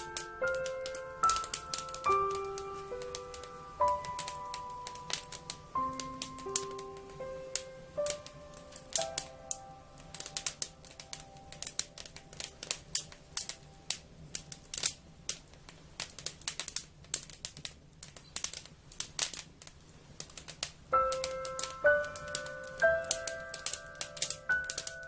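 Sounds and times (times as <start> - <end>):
soft background music: 0.0 - 14.8, 20.9 - 25.0
wood fire crackling: 0.0 - 25.0.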